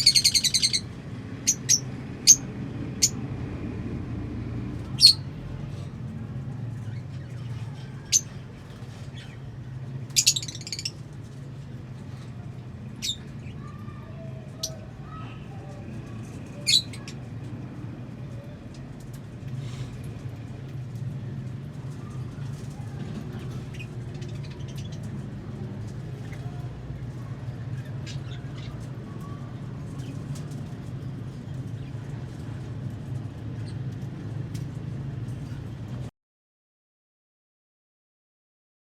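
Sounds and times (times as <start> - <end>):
lovebirds chirping and squawking: 0.0 - 3.2, 4.8 - 5.9, 6.8 - 11.2, 12.1 - 17.2, 21.9 - 25.4, 27.2 - 30.7.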